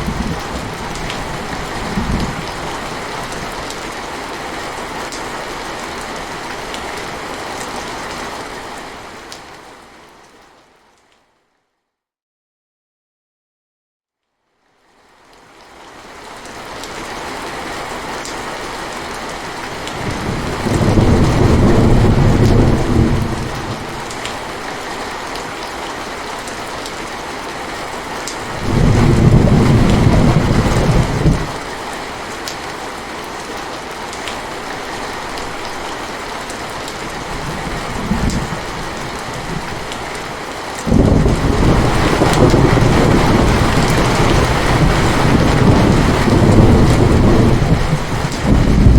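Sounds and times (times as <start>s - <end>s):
thunder rolling: 0.0s - 2.6s, 20.0s - 24.1s, 28.5s - 31.6s, 40.9s - 48.9s
steady rain: 0.0s - 11.5s, 14.3s - 48.9s.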